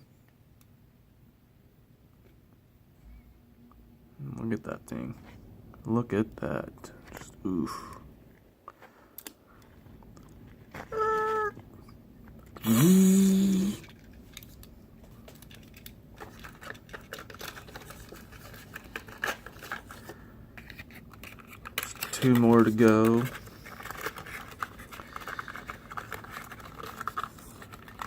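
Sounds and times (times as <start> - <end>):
pitched vocal-like sound: 10.9 - 11.6, 12.6 - 13.9
model cars and packaging rattling: 13.6 - 28.0.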